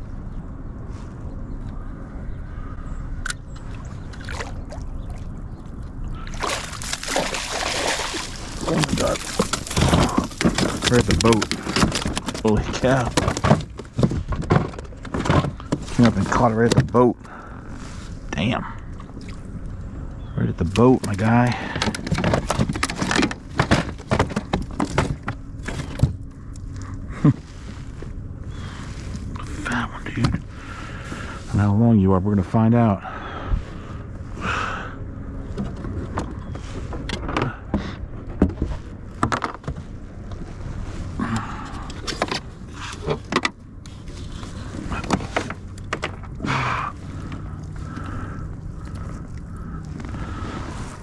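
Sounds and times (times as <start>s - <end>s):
water and wind rumble: 0.0s - 51.0s
fish splashing: 6.2s - 10.4s.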